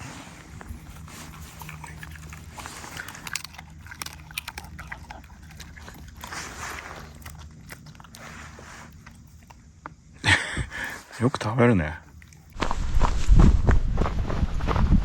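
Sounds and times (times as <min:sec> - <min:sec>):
dog crunching a dry treat: 0:00.7 - 0:10.0
wind rumble on microphone: 0:12.6 - 0:15.0.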